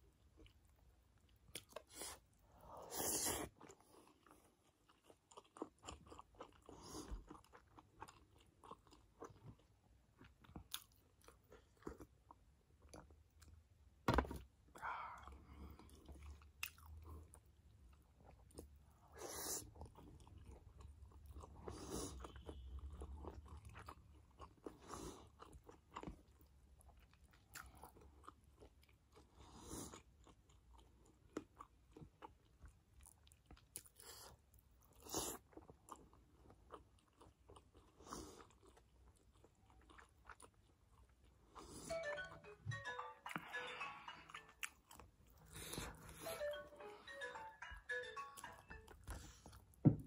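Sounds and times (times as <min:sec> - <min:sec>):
person chewing: 0:00.1 - 0:13.7, 0:14.8 - 0:42.2, 0:42.9 - 0:49.8.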